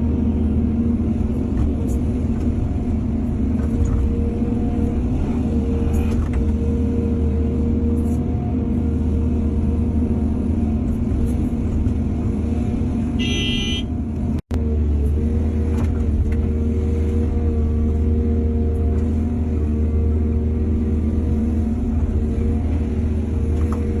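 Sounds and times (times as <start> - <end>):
excavator diesel engine running: 0.0 - 24.0
short horn-like tone: 13.2 - 13.9.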